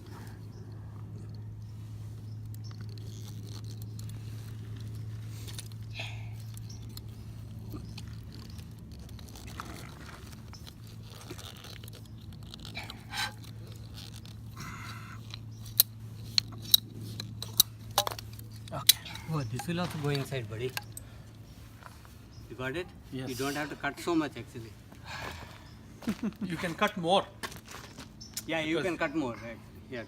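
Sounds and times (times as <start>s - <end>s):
steady low hum: 0.0s - 30.0s
plastic pipe scraping and crunching: 6.7s - 21.0s.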